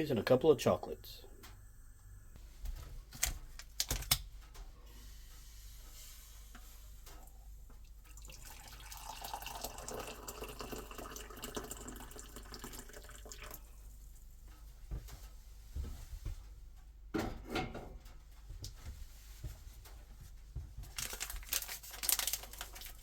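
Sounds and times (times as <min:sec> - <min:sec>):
liquid running into container: 0:07.1 - 0:13.9, 0:21.0 - 0:23.0.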